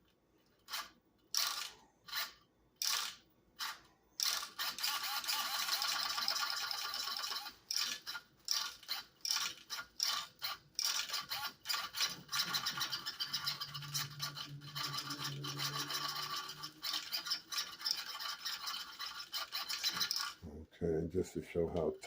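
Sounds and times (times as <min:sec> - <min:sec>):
servo motor whirring: 0:09.7 - 0:20.3.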